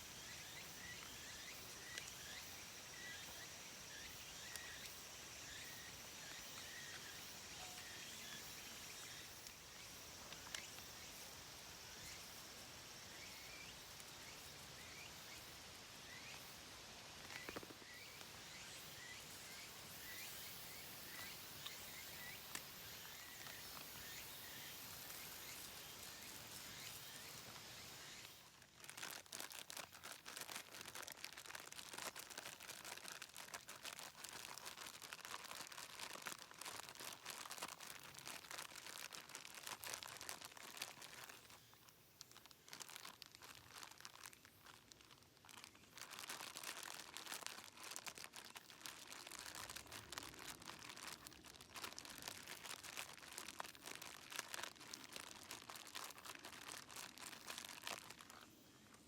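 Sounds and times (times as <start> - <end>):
dense fine crackling: 28.0 - 59.0.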